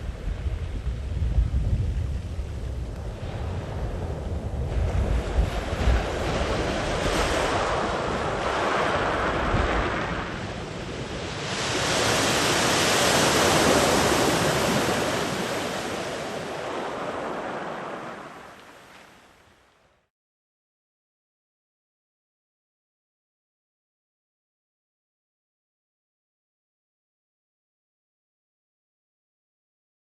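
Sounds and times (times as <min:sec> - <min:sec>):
wind rumbling on microphone: 0:00.0 - 0:19.8
sea waves breaking: 0:01.9 - 0:20.0.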